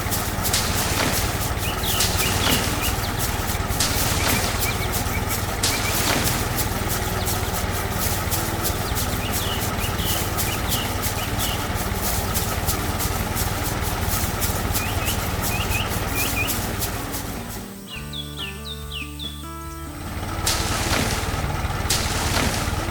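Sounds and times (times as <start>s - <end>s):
regular ticking: 0.0s - 22.9s
small birds chirping: 0.0s - 22.9s
tractor engine running: 0.0s - 22.9s.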